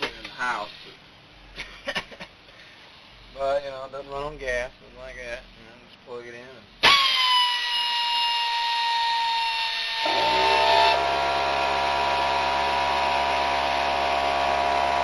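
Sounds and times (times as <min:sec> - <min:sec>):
electric motor high whine: 0:06.8 - 0:15.0
compressor low hum: 0:10.0 - 0:15.0.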